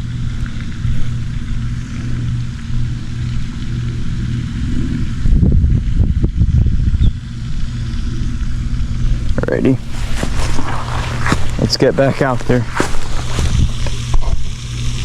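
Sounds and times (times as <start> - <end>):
wind buffeting microphone: 9.1 - 14.4.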